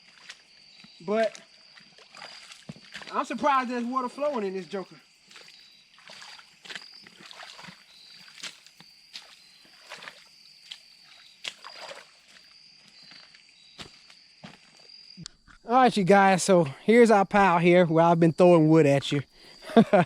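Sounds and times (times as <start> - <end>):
sloshing through shallow water: 0.0 - 12.6
high-pitched insect trill: 0.0 - 20.0.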